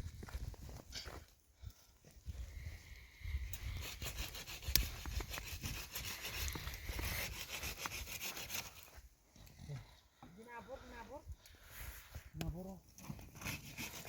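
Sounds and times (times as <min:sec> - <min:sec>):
hand saw rasping through wood: 0:03.6 - 0:08.9, 0:13.1 - 0:14.0.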